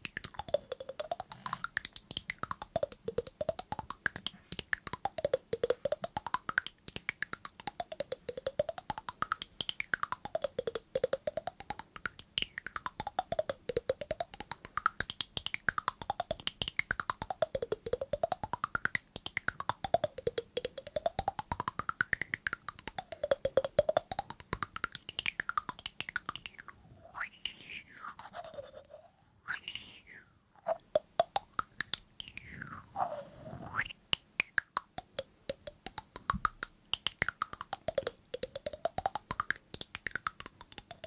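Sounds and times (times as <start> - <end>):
rapid tapping clicks: 0.0 - 26.7, 30.8 - 32.7, 33.8 - 41.0.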